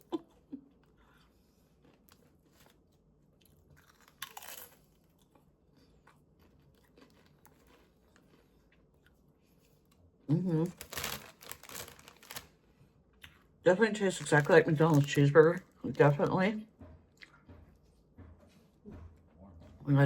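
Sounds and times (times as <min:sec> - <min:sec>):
crunching tortilla chips: 0:01.8 - 0:09.2, 0:10.6 - 0:12.6, 0:13.7 - 0:16.4.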